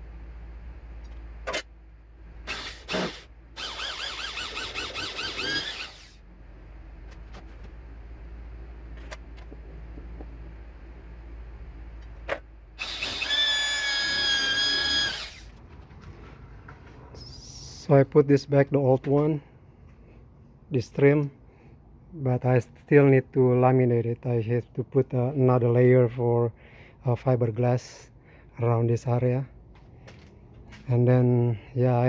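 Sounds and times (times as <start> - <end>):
cordless drill whining: 2.5 - 6.2, 12.8 - 15.5.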